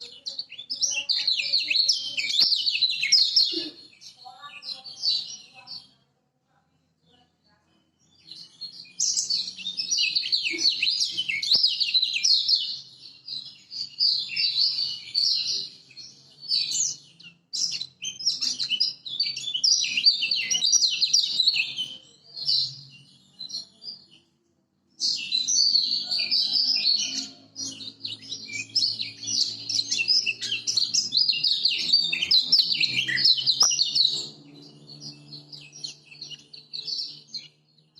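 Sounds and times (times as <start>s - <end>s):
bird calls: 0.0s - 5.6s, 8.2s - 24.3s, 25.0s - 37.9s.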